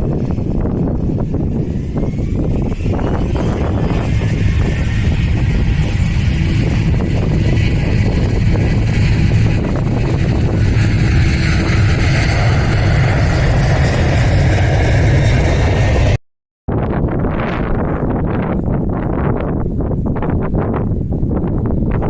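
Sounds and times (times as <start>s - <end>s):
turboprop engines running: 0.0s - 16.2s
wind rumble on microphone: 0.0s - 22.0s.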